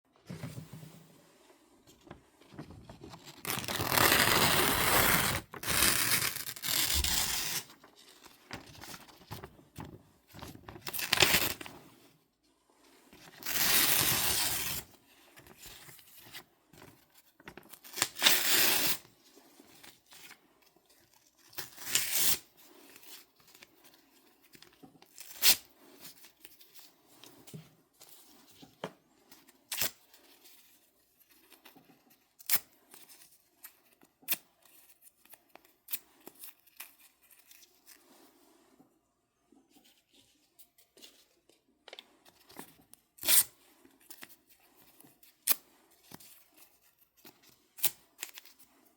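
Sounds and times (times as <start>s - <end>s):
paper tearing: 3.2s - 7.8s, 13.3s - 14.9s.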